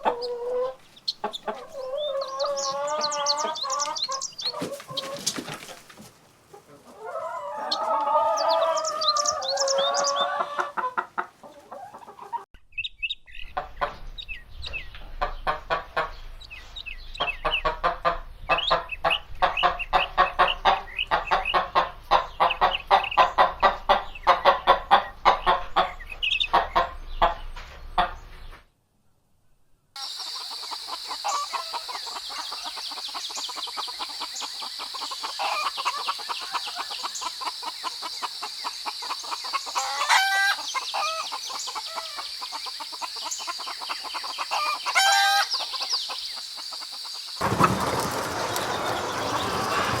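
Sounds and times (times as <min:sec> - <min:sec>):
chickens clucking: 0:00.0 - 0:12.5, 0:13.4 - 0:28.6, 0:30.0 - 0:50.0
rooster crowing: 0:07.0 - 0:10.7.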